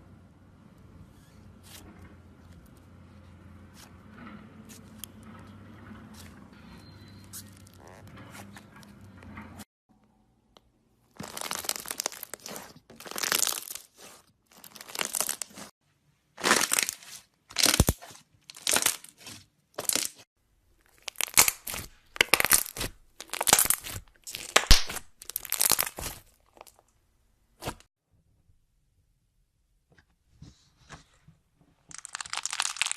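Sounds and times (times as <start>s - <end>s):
slime squeezed by hand crackling: 11.2s - 15.7s, 20.9s - 26.6s, 31.9s - 32.9s.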